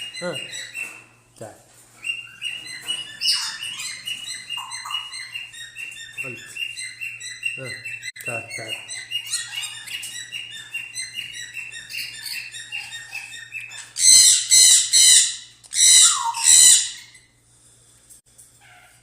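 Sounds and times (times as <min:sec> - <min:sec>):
parrots chirping: 0:00.0 - 0:01.3, 0:01.9 - 0:17.4
parrot screeching: 0:02.2 - 0:06.2, 0:09.0 - 0:17.3.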